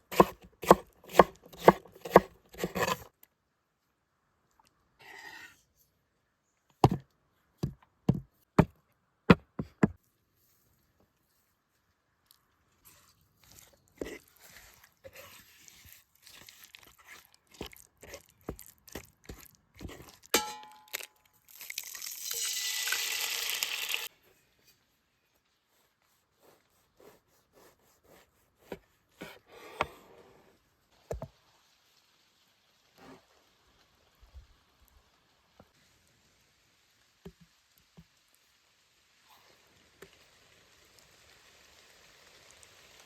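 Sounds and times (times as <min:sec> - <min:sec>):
knife chopping on wooden board: 0:00.1 - 0:03.0.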